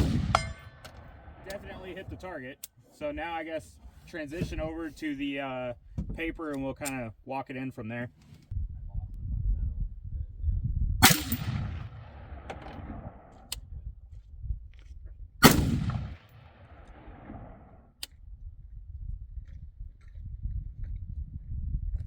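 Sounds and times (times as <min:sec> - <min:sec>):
rifle shots echoing: 0:00.0 - 0:02.2, 0:11.0 - 0:13.4, 0:15.4 - 0:17.8.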